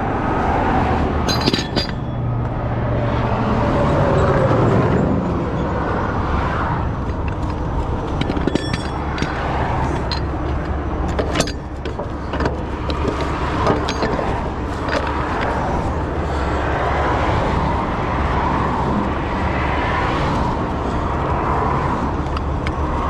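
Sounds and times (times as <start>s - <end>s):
heavy vehicle engine running: 0.0s - 23.0s
metallic clinks and clanks: 1.2s - 2.5s, 6.9s - 15.9s.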